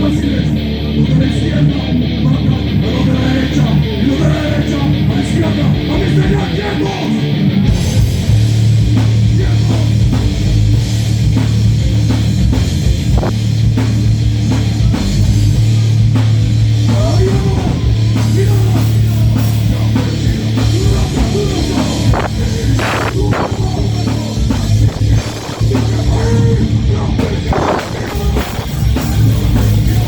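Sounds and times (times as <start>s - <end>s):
electric guitar: 0.0s - 30.0s
heavy metal band playing: 0.0s - 30.0s
drum kit hits: 7.7s - 30.0s.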